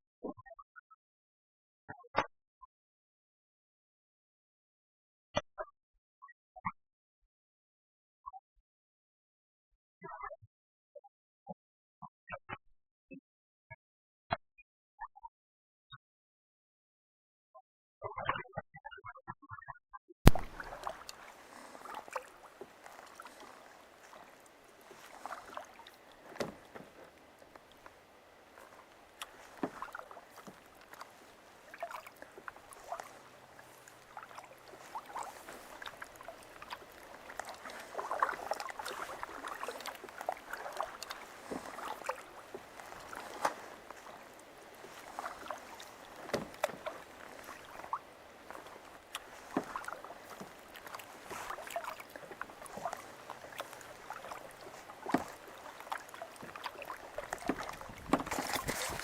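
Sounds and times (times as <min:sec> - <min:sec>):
kayak paddle splashing: 0:20.3 - 0:59.0
water dripping: 0:20.3 - 0:59.0.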